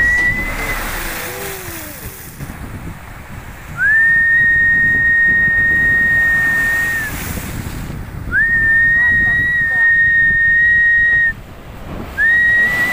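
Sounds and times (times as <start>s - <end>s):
high whistled note: 0.0s - 1.5s
surf rumble: 0.0s - 12.9s
wind: 0.0s - 12.9s.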